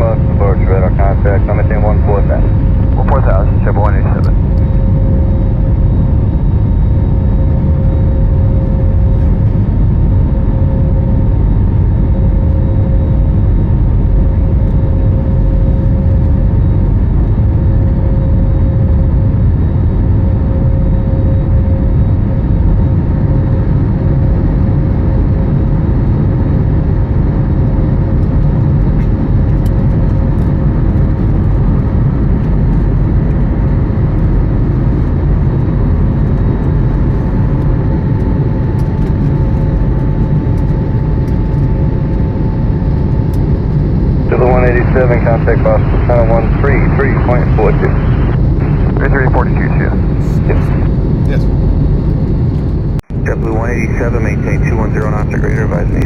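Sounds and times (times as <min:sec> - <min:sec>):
steady hum: 0:00.0 - 0:26.6, 0:28.2 - 0:56.0
jet engine and airflow roar: 0:00.0 - 0:56.0.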